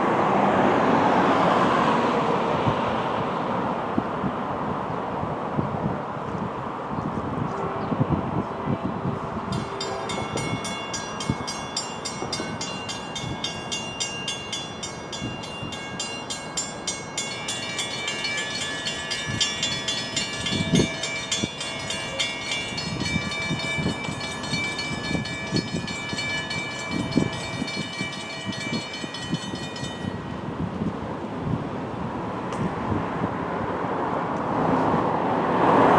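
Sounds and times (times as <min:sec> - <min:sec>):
train rumble: 0:00.0 - 0:35.9
railroad warning bells ringing: 0:07.5 - 0:30.9.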